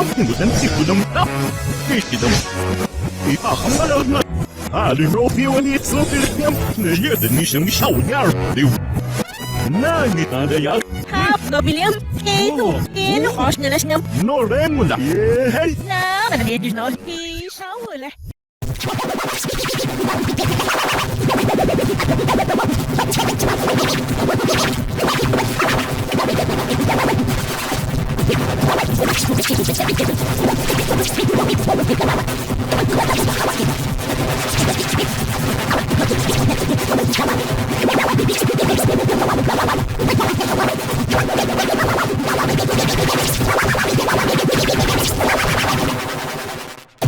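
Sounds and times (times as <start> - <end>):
distorted electronic music: 0.0 - 17.4, 18.6 - 47.0.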